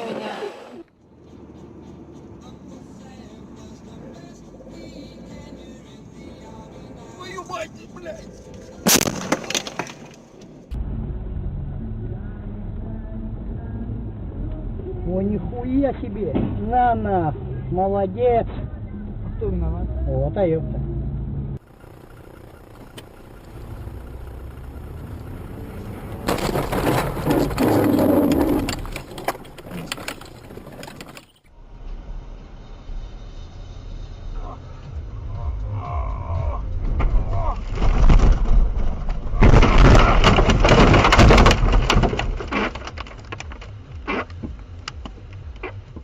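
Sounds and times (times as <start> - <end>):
car road and engine hum: 0.0 - 9.0, 10.2 - 46.0
car collision crunching: 8.8 - 10.4, 21.6 - 31.5, 36.8 - 46.0
low rumble: 10.7 - 29.2, 31.5 - 46.0
sharp clicks and rattles: 21.6 - 31.5, 36.8 - 46.0
rough scraping with knocks: 22.1 - 31.5, 36.8 - 46.0.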